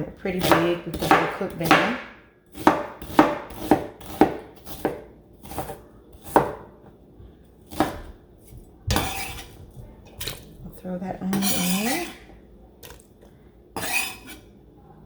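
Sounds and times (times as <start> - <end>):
knife chopping onion: 0.3 - 6.7, 7.7 - 10.0, 13.8 - 14.4
knife scraping: 8.9 - 9.6, 11.3 - 12.3, 13.8 - 14.5.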